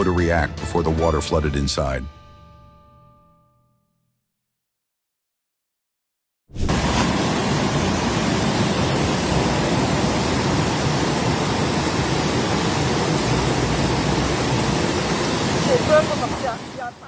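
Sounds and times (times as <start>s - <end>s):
floodwater rushing: 6.6s - 17.0s.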